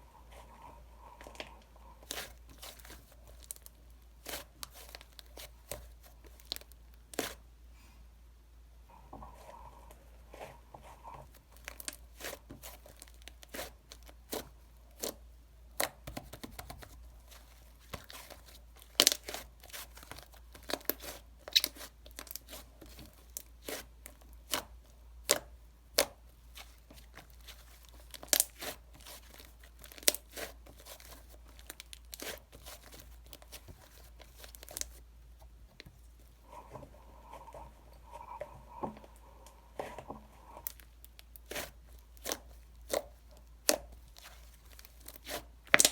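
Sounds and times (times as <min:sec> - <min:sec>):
wrapper being torn and crinkled: 0:27.2 - 0:35.0.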